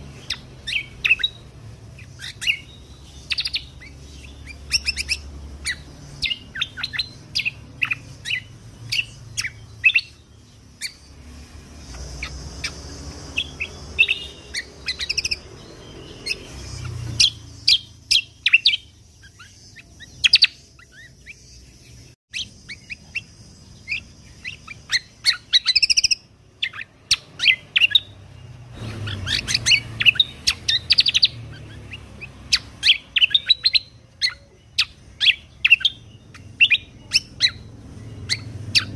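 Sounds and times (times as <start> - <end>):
songbird chirping and trilling: 0.0 - 38.9.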